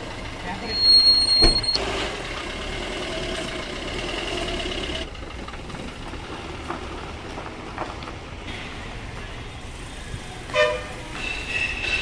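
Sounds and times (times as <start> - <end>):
diesel car engine clattering: 0.0 - 9.4.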